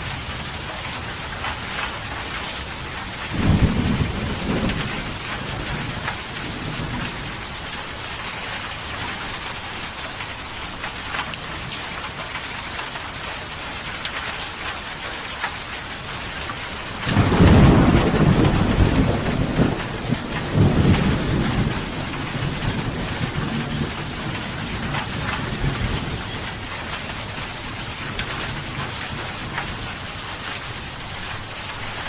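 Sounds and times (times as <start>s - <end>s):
thunder rumbling: 0.0s - 8.2s, 16.9s - 32.0s
steady rain falling: 0.0s - 32.0s.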